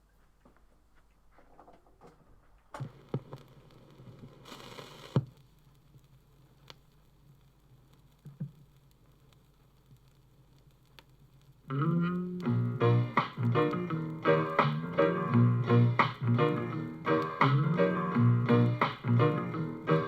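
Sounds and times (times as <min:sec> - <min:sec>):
record surface noise and clicks: 0:00.0 - 0:14.8.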